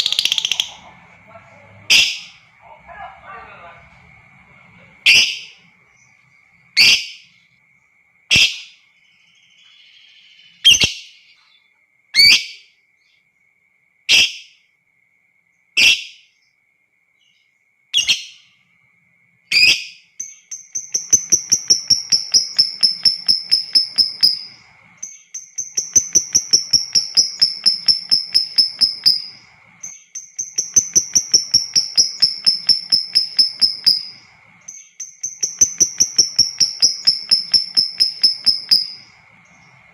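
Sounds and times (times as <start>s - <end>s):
lovebird shrieking and chattering: 0.0s - 0.8s, 25.6s - 29.6s, 35.2s - 39.2s.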